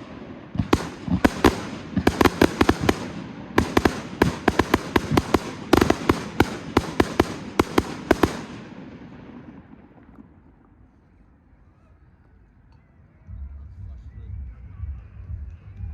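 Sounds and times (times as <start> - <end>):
fireworks banging: 0.0 - 10.8.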